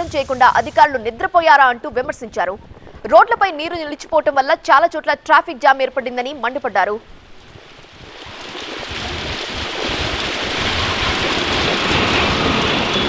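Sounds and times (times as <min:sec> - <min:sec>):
heavy rain pouring: 0:00.0 - 0:01.5, 0:07.2 - 0:13.0.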